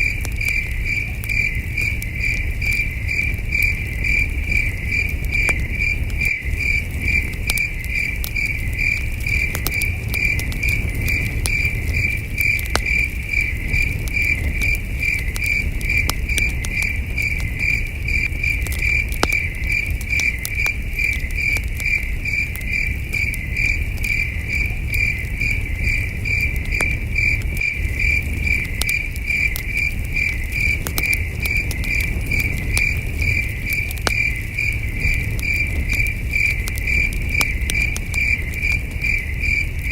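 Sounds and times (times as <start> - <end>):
campfire crackling and popping: 0.0 - 39.9
crickets chirping: 0.0 - 39.9.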